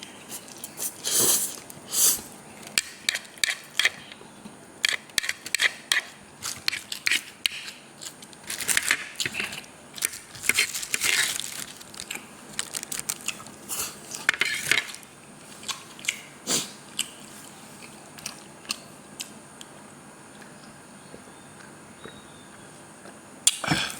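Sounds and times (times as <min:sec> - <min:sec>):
person chewing noodles: 0:09.2 - 0:22.2.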